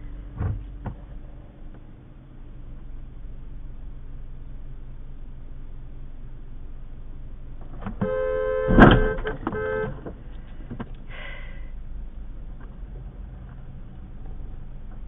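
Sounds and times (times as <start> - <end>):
traffic noise: 0.0 - 15.0
car horn sounding: 7.9 - 10.2.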